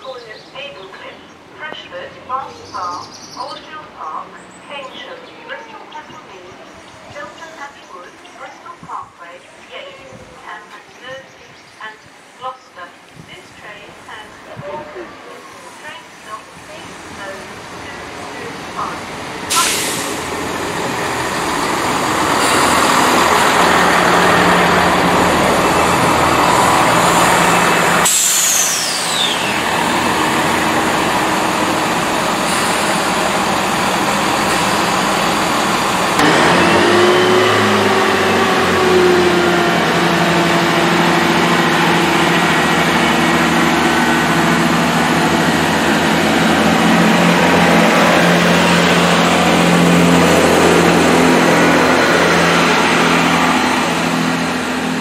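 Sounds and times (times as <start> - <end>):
train rolling along platform: 0.0 - 55.0
train whine: 13.6 - 55.0
diesel engine drone: 16.5 - 55.0
train brake squeal: 28.1 - 29.6.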